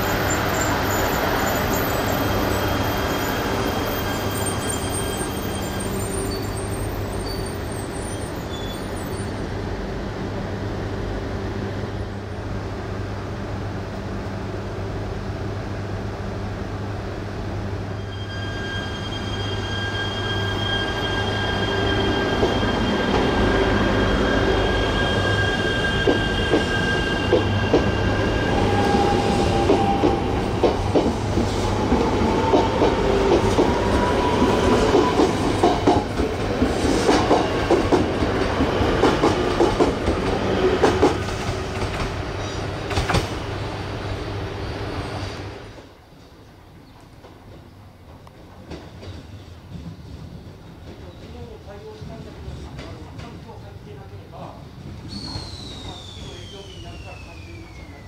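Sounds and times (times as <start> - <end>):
train wheels clacking over rail joints: 34.9 - 42.2.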